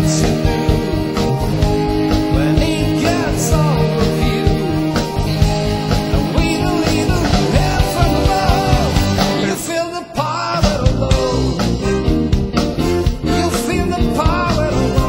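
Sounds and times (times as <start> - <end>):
rock song with singing: 0.0 - 15.0.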